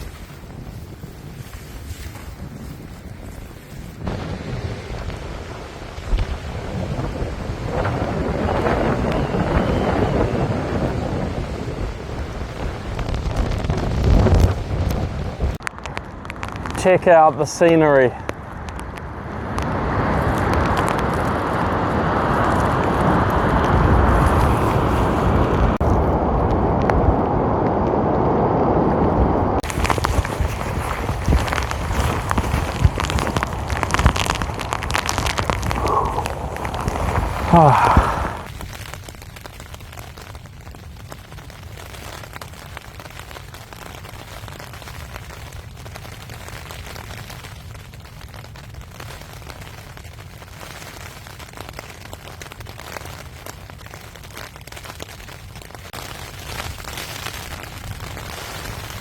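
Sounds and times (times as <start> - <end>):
strong wind on microphone: 0.0 - 38.6
rain patter: 0.0 - 59.0
quick small ticks and crackles: 29.6 - 59.0.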